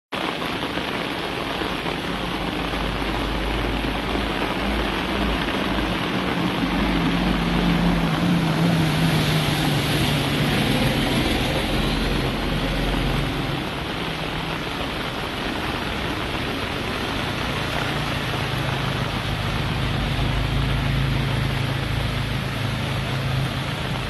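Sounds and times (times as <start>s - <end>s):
heavy rain: 0.1s - 24.0s
running floodwater: 0.1s - 24.0s
engine hum: 1.7s - 24.0s.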